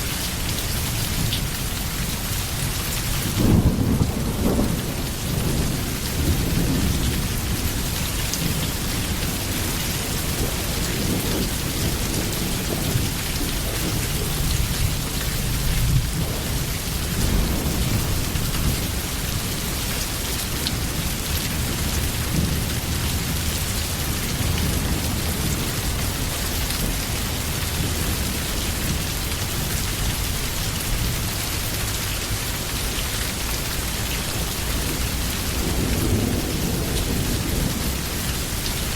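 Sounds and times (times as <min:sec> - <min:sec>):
heavy rain: 0:00.0 - 0:38.9
rolling thunder: 0:03.3 - 0:29.2, 0:34.4 - 0:38.9.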